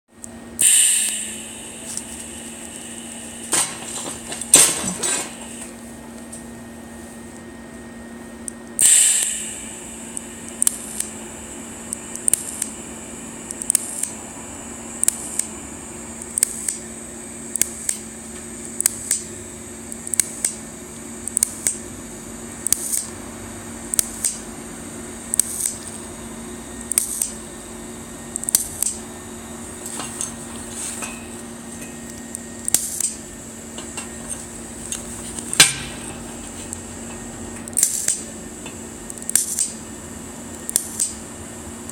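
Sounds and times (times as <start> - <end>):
welder hum: 0.1 - 41.9
welding arc bursts: 0.6 - 5.7, 8.8 - 15.6, 16.2 - 18.1, 18.7 - 19.3, 20.0 - 20.6, 22.6 - 23.1, 23.9 - 24.4, 25.2 - 25.9, 26.8 - 27.4, 32.6 - 33.3, 37.7 - 38.4, 39.2 - 39.8, 40.7 - 41.2.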